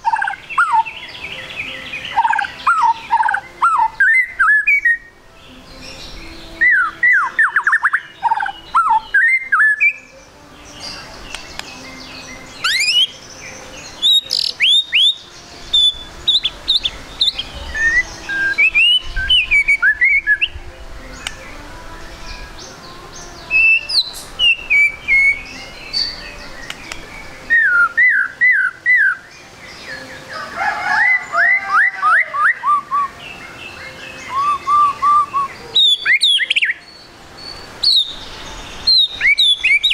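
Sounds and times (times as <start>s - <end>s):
bird singing whistled phrases: 0.0s - 5.1s, 6.4s - 10.2s, 10.9s - 13.2s, 13.8s - 20.6s, 23.5s - 29.3s, 31.0s - 33.2s, 34.0s - 39.9s.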